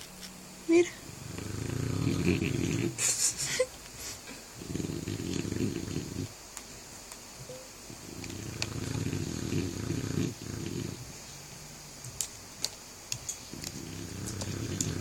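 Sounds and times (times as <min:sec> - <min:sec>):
dog snoring: 0:01.2 - 0:03.1, 0:04.6 - 0:06.3, 0:07.9 - 0:11.3, 0:13.5 - 0:15.0.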